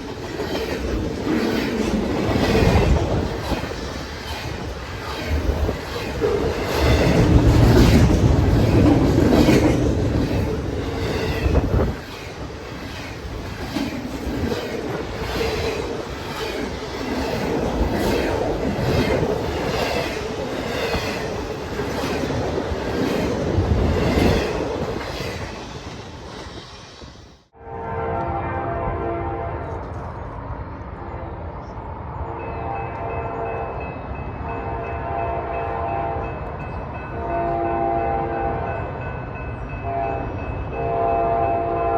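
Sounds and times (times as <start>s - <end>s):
faint ringing from train wheels: 32.3s - 41.9s.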